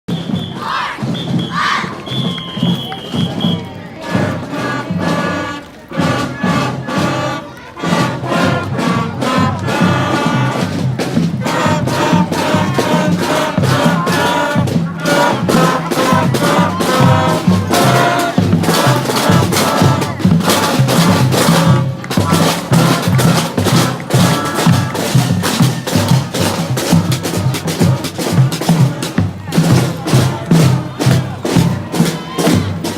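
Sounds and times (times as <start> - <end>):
steady drum beat: 0.1 - 32.9.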